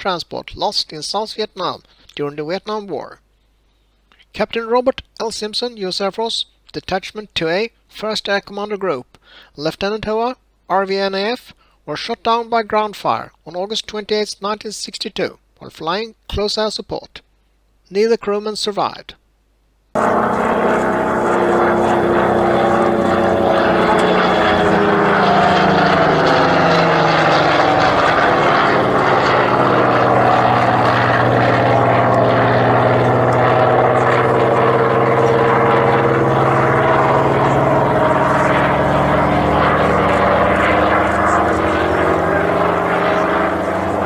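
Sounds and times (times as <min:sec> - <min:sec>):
propeller aircraft engine running: 0:20.0 - 0:44.0.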